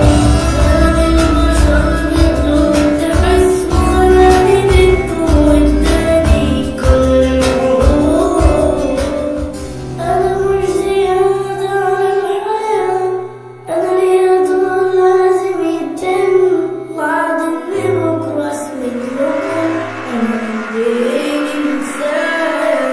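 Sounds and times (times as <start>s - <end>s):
music with held bass notes: 0.0s - 9.9s
high-pitched singing voice: 0.0s - 22.9s.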